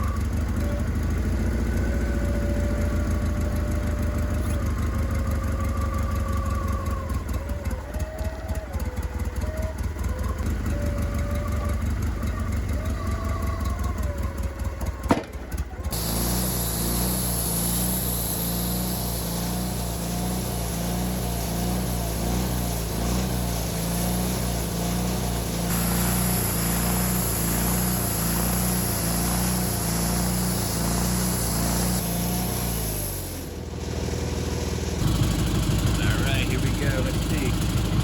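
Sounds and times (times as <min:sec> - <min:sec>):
sawmill engine running: 0:00.0 - 0:38.0
high hiss: 0:15.9 - 0:35.0.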